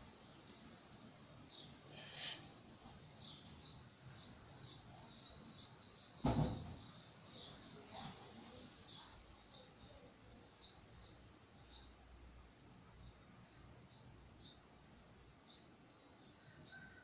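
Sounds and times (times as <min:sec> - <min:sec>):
small birds chirping: 0:00.0 - 0:17.0
dull thump: 0:06.2 - 0:06.8.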